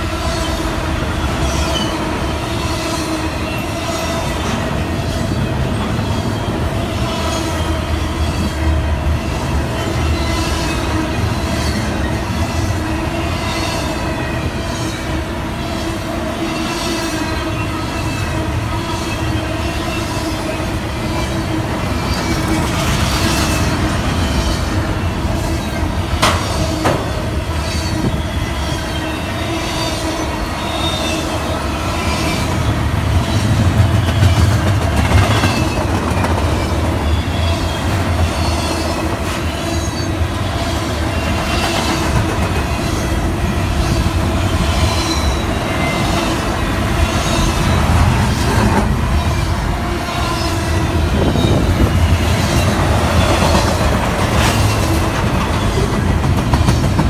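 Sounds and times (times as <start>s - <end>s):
wheels squealing on rails: 0.0s - 57.0s
train wheels clacking on rail joints: 16.6s - 57.0s.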